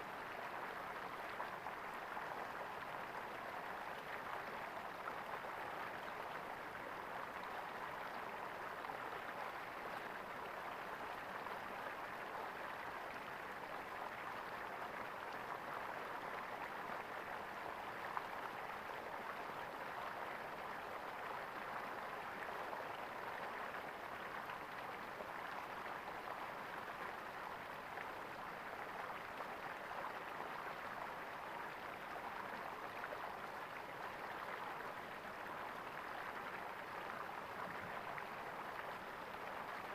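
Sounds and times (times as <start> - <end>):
stream gurgling: 0.0 - 39.9.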